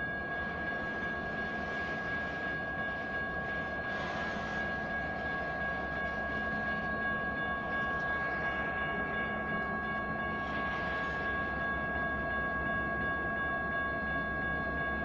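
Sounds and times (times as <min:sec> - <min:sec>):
crossing bells ringing: 0:00.0 - 0:15.0
freight train rumbling: 0:00.0 - 0:15.0.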